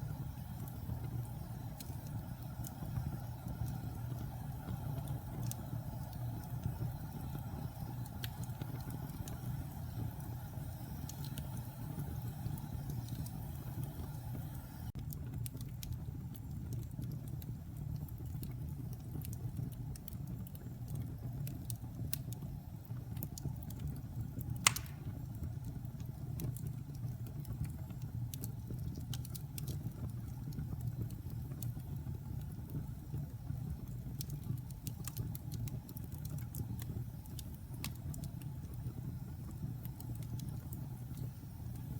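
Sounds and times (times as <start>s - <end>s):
wood fire crackling: 0.0s - 41.9s
loud fire pop: 24.6s - 25.2s.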